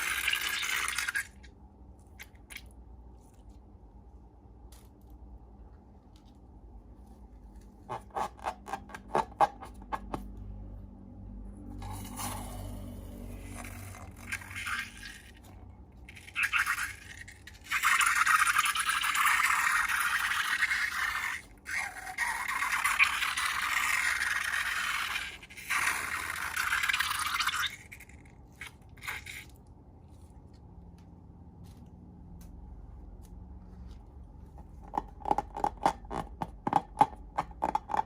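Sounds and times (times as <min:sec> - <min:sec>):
slime scraping: 0:11.8 - 0:30.7.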